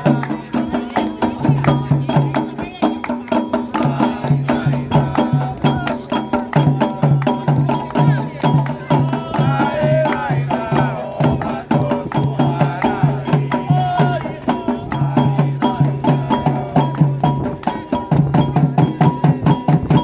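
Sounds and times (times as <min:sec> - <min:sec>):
hand drums playing fast rhythm: 0:00.0 - 0:20.0
voices singing: 0:00.0 - 0:20.0
wood block strikes: 0:00.0 - 0:20.0.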